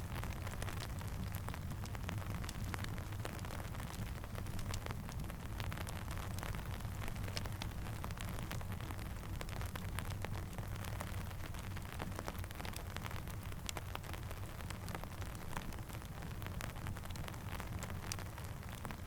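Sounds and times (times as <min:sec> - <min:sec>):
crackling campfire: 0:00.0 - 0:19.0
steady rain: 0:00.0 - 0:19.0.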